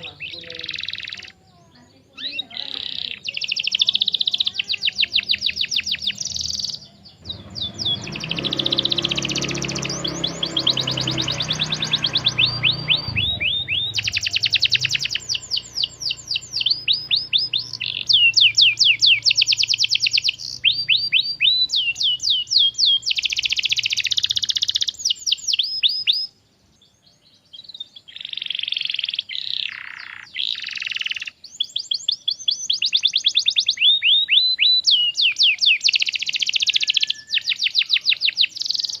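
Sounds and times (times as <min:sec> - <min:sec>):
canary singing trills: 0:00.0 - 0:39.0.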